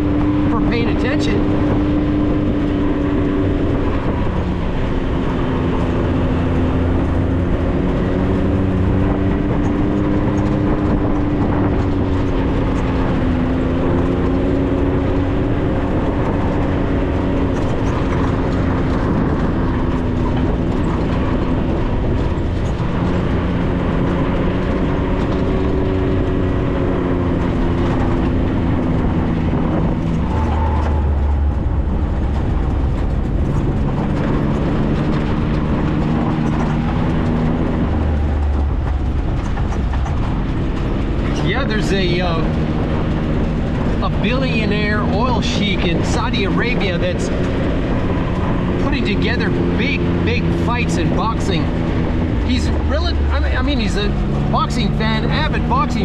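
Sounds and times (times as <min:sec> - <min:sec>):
car engine running: 0:00.0 - 0:56.0
tyre and road noise: 0:00.0 - 0:56.0.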